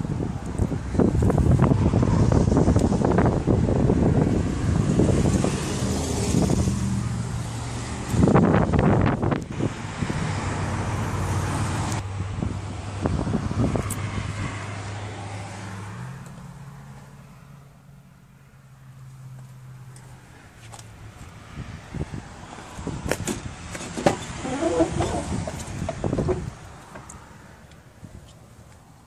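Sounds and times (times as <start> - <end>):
wind gusting over microphone: 0.0 - 15.6, 21.4 - 27.0.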